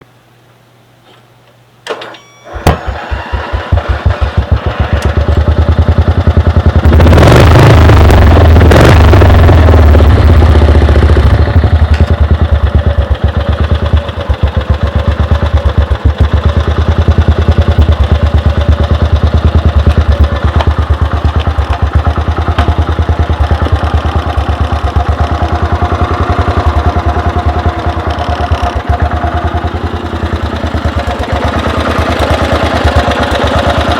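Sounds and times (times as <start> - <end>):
lawn mower engine running: 1.9 - 33.9
engine cranking clatter: 2.5 - 6.2.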